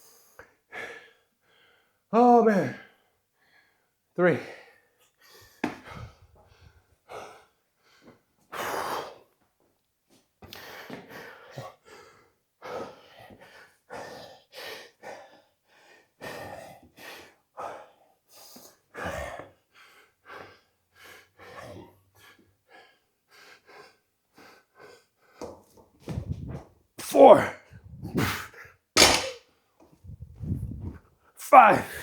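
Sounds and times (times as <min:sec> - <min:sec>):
man gasping heavy breaths: 0:04.6 - 0:06.8.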